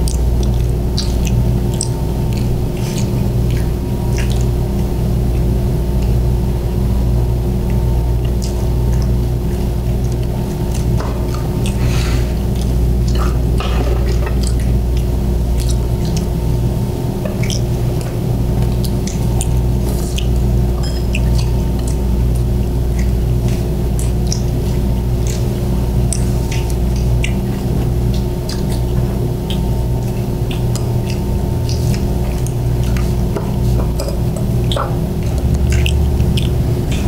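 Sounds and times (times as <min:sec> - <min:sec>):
chewing and wet mouth sounds: 0:00.0 - 0:37.0
steady low hum: 0:00.0 - 0:37.0
chopsticks clicking against dishes: 0:20.1 - 0:22.0, 0:30.5 - 0:37.0.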